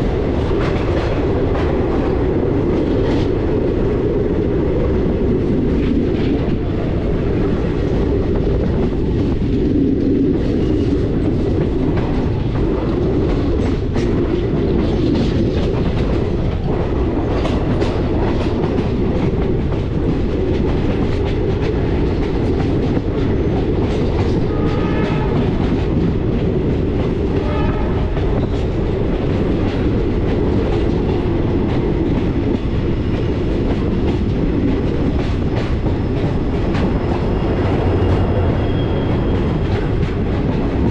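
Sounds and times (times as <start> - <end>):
train rumbling with wheels clattering: 0.0 - 40.9
train horn: 24.4 - 25.7, 27.4 - 28.2.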